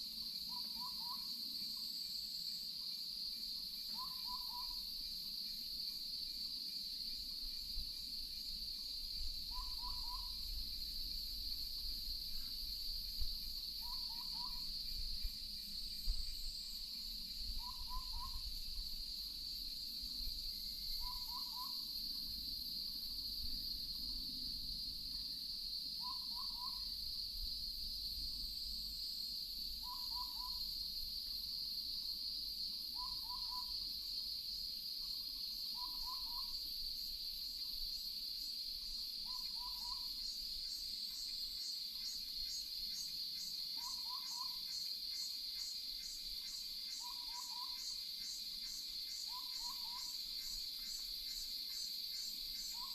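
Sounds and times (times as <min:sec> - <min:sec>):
insects droning: 0:00.0 - 0:52.9
owl hooting: 0:00.5 - 0:01.3, 0:03.9 - 0:04.8, 0:09.5 - 0:10.4, 0:13.8 - 0:14.7, 0:17.6 - 0:18.4, 0:21.0 - 0:21.8, 0:26.0 - 0:26.9, 0:29.8 - 0:30.6, 0:33.0 - 0:33.8, 0:35.8 - 0:36.5, 0:39.3 - 0:40.1, 0:43.8 - 0:44.6, 0:47.0 - 0:47.8, 0:49.3 - 0:50.2.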